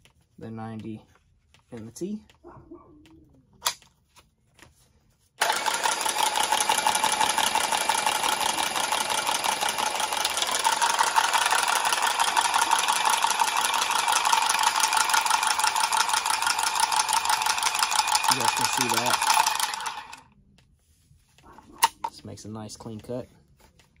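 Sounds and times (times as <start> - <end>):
pipe cutter motor whining: 5.4 - 20.2.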